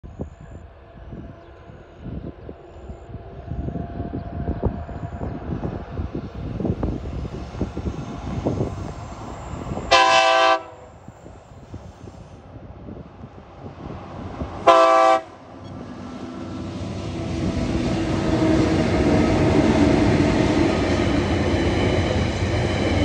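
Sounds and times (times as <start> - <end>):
freight train rumbling: 0.0 - 23.0
locomotive horn blast: 9.9 - 10.9, 14.6 - 15.4.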